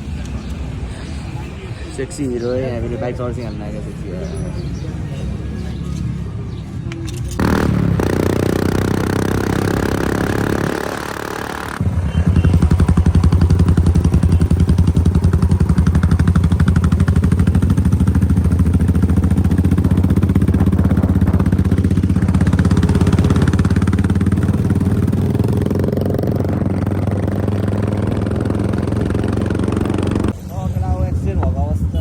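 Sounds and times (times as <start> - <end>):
motorcycle engine running: 7.3 - 32.0.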